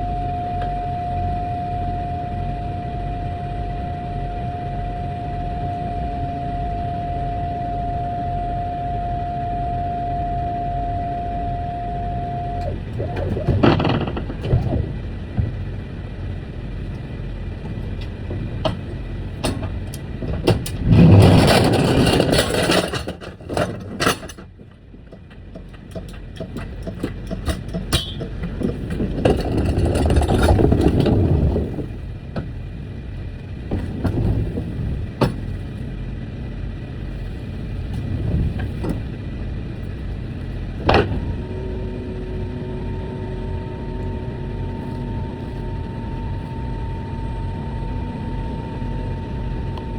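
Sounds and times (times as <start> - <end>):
steady tone: 0.0 - 17.9
truck engine and road noise: 0.0 - 49.9.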